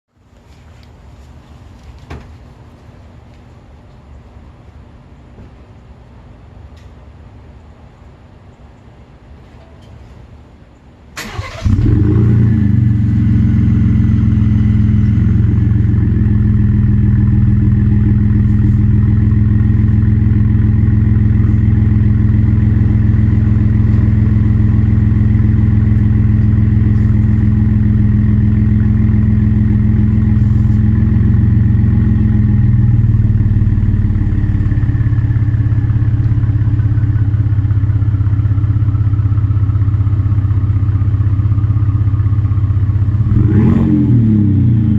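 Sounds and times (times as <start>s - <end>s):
engine cranking and starting: 11.2s - 12.1s
engine idling loudly: 11.3s - 44.9s.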